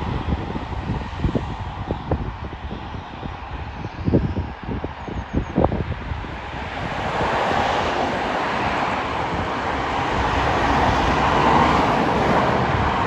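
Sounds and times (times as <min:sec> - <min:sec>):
freight train rolling past: 0:06.8 - 0:13.0.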